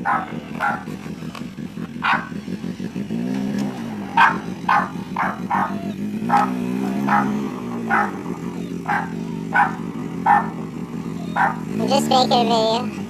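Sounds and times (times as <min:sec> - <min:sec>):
dog barking: 0:00.0 - 0:01.0, 0:02.0 - 0:02.4, 0:04.1 - 0:11.8.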